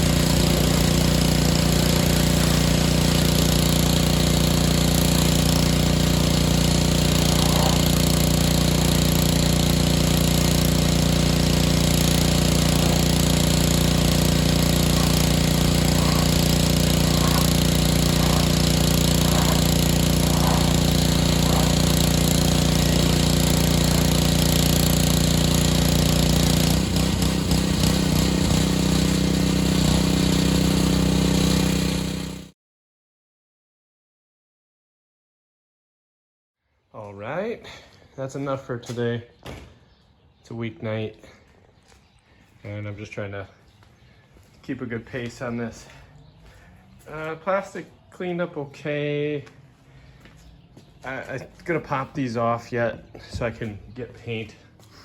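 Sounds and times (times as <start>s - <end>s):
small engine drone: 0.0s - 32.6s, 45.1s - 53.5s
pressure washer spray hiss: 4.1s - 9.5s, 12.2s - 24.1s.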